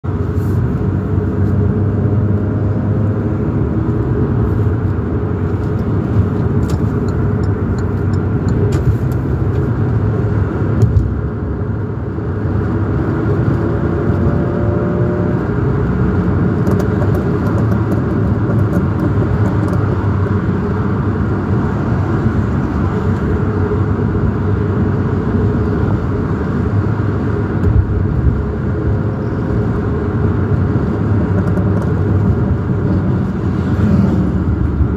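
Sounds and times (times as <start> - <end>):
sports car engine popping: 3.0 - 10.0, 12.6 - 21.6, 25.4 - 33.3.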